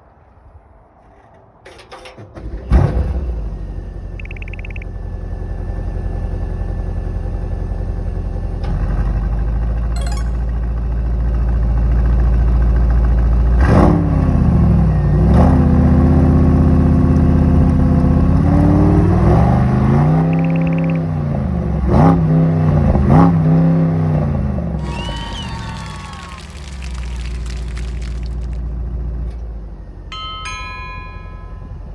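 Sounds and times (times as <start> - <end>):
car engine idling and revving: 2.4 - 9.9, 10.6 - 24.9, 26.7 - 30.2.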